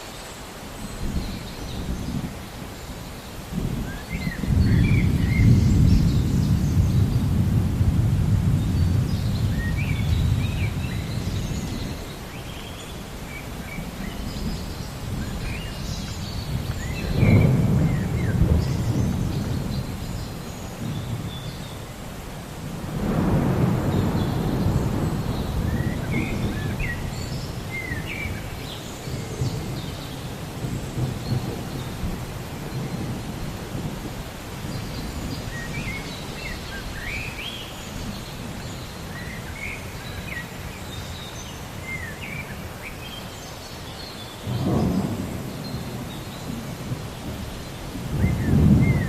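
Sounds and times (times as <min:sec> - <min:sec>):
birds chirping: 0:00.0 - 0:49.0
rain hissing: 0:00.0 - 0:49.0
thunder rumbling: 0:03.4 - 0:12.3, 0:13.2 - 0:37.4, 0:44.4 - 0:49.0.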